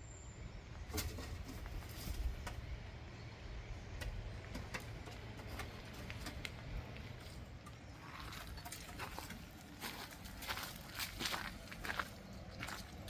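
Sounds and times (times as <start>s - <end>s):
footsteps clicking and scuffing: 4.5s - 13.0s.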